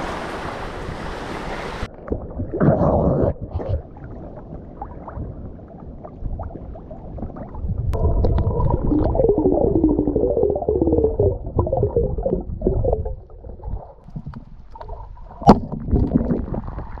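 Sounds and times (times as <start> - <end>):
surf: 0.0 - 1.9
underwater sloshing and bubbling: 0.0 - 17.0.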